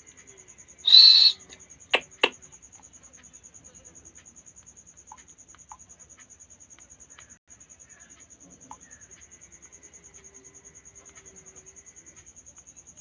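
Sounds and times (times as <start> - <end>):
parrot squawking: 0.9 - 1.4.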